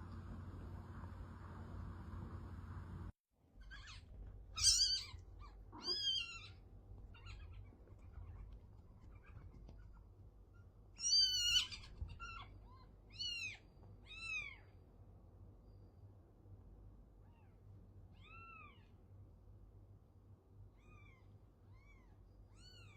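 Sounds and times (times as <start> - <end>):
cat meowing: 4.6 - 8.4, 11.0 - 12.5.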